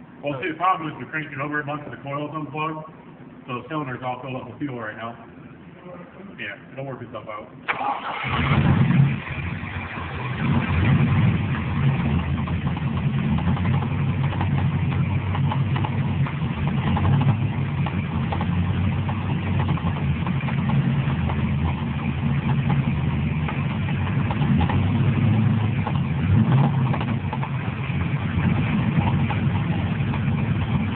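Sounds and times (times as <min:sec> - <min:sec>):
car engine idling with a knock: 0:11.3 - 0:30.9.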